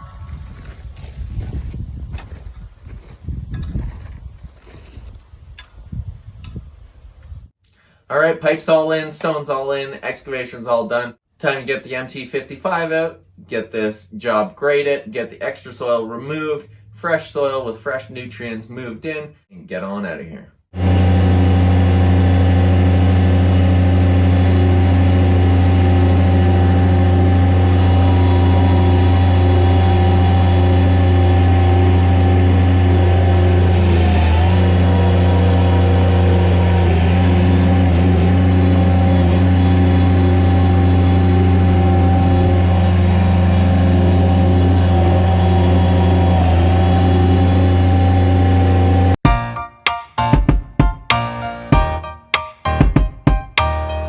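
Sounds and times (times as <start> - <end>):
diesel engine running: 20.8 - 49.2.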